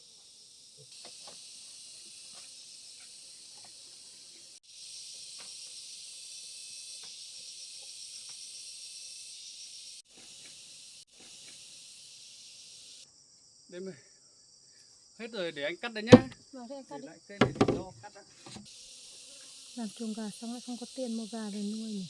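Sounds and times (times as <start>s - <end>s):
insects chirring: 18.8s - 22.0s.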